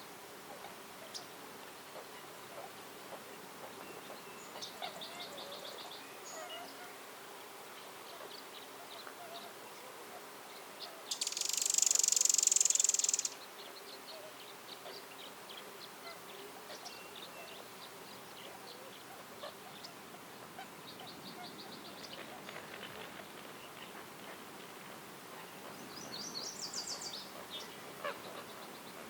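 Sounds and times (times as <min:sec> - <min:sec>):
faint bird chirps: 0:07.8 - 0:22.4, 0:25.4 - 0:29.0
buzzing insect call: 0:11.1 - 0:13.3.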